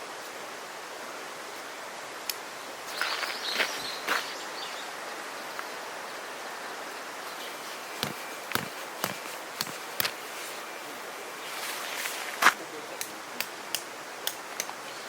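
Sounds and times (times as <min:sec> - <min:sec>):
steady outdoor hiss: 0:00.0 - 0:15.0
sharp clicks: 0:08.0 - 0:10.2, 0:13.0 - 0:14.8
rustling and crackling: 0:08.0 - 0:10.7.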